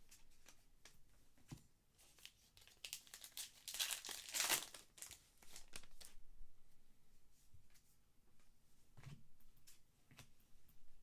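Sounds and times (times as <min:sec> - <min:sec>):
wrapper tearing and crinkling: 0:02.6 - 0:06.1.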